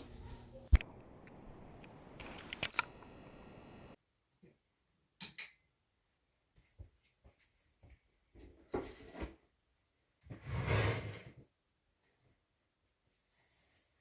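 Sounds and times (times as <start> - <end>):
sharp clicks: 0.7 - 3.2.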